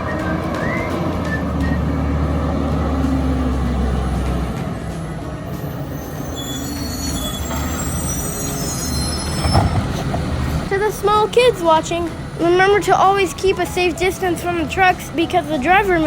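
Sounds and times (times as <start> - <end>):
garbage truck engine rumble: 0.0 - 16.0
brake squeals: 4.8 - 16.0.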